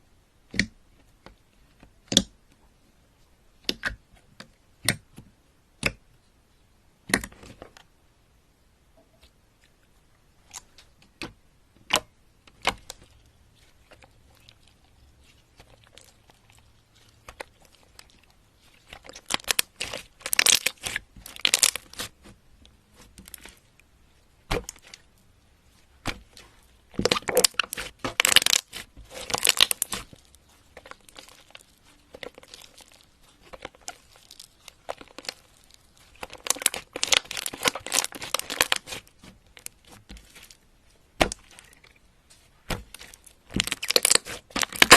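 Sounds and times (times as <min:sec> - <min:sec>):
slime clicking and crackling: 0:10.4 - 0:44.9.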